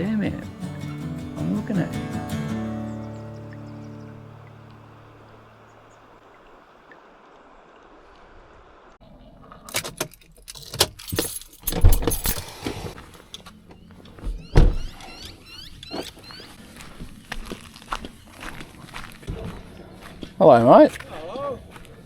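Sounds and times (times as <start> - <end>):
gear rattling and clinking: 10.1 - 12.4.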